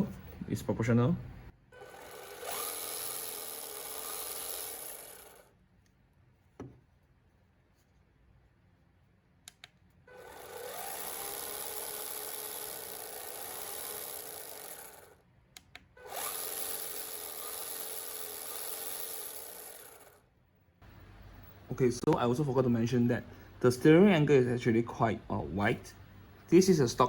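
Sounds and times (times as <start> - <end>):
toy car electric motor whine: 1.8 - 5.5, 10.1 - 15.2, 16.0 - 20.2.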